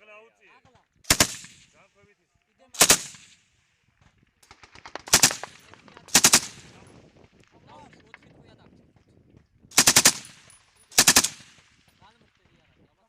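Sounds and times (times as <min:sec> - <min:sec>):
machine gun bursts: 0:01.1 - 0:01.6, 0:02.8 - 0:03.3, 0:04.4 - 0:06.9, 0:09.7 - 0:11.6.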